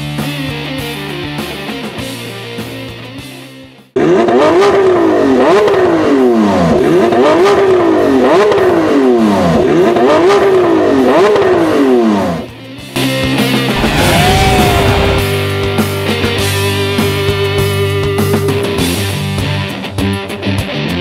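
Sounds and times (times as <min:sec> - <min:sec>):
rock music: 0:12.9 - 0:21.0
sports car engine revving: 0:13.7 - 0:15.4.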